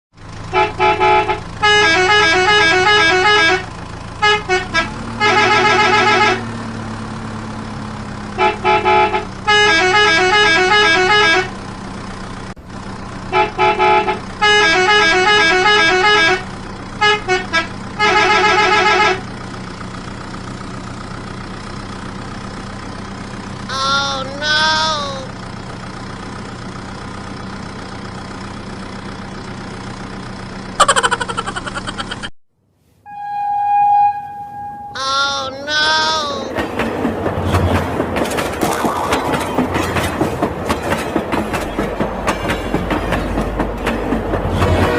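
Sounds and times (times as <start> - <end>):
toy beeping horn tune: 23.7 - 25.3, 33.1 - 36.4
short wavering tone: 33.0 - 35.0.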